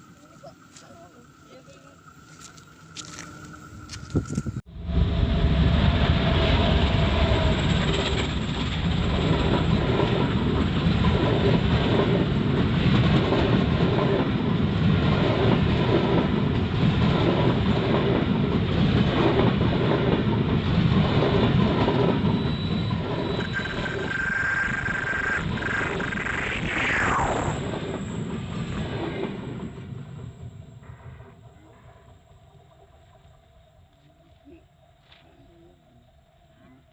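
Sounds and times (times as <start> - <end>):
falling whine: 22.4 - 30.6
high steady tone: 22.6 - 28.3.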